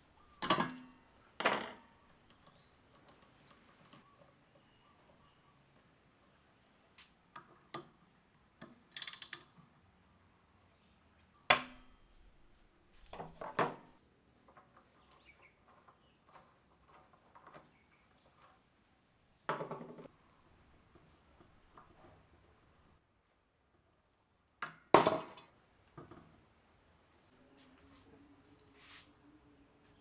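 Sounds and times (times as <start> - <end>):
metal tools clinking on a bench: 0.2 - 5.4, 8.6 - 9.6, 11.5 - 13.8.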